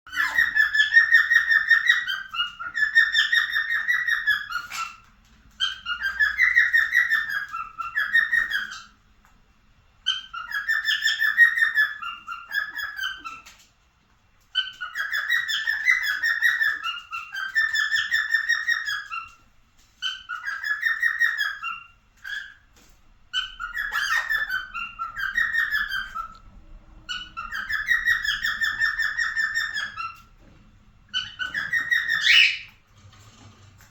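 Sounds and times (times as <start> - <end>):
cockatiel warbling whistles: 31.2 - 32.7.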